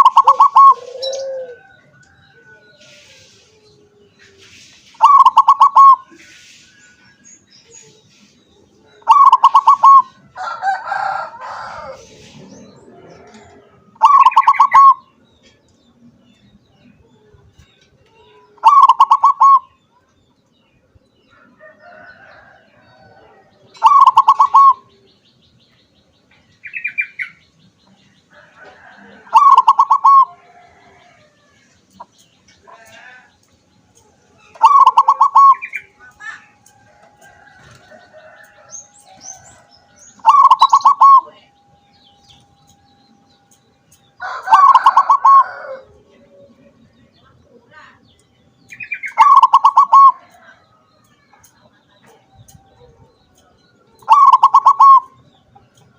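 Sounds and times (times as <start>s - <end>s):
dove cooing: 0.0s - 4.3s, 5.0s - 6.2s, 9.0s - 15.0s, 18.6s - 19.7s, 23.0s - 24.9s, 28.8s - 31.2s, 34.5s - 36.4s, 40.2s - 41.4s, 44.2s - 46.0s, 49.2s - 50.2s, 54.0s - 55.2s.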